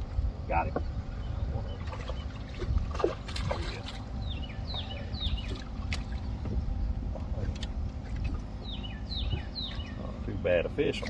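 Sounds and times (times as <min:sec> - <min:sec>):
low rumble of wind and water: 0:00.0 - 0:11.0
small water splashes: 0:01.6 - 0:08.6.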